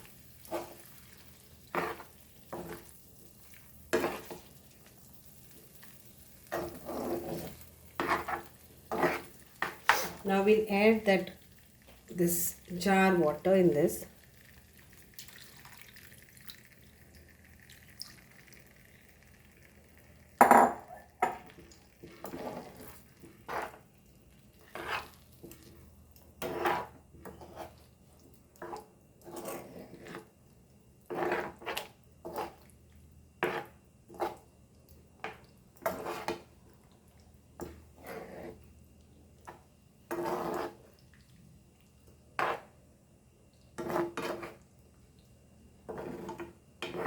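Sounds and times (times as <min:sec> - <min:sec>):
spoon scraping and knocking a pan: 0:01.7 - 0:02.9, 0:03.9 - 0:04.4, 0:06.5 - 0:10.2.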